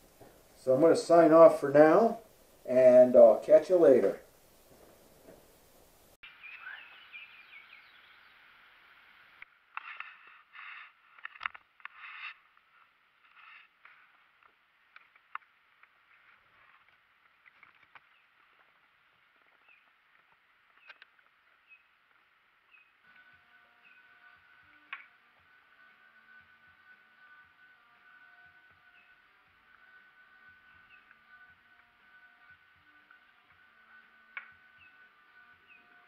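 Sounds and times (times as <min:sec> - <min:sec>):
birds chirping and calling: 0:06.3 - 0:08.3, 0:22.7 - 0:24.7, 0:30.4 - 0:31.4, 0:34.6 - 0:36.0.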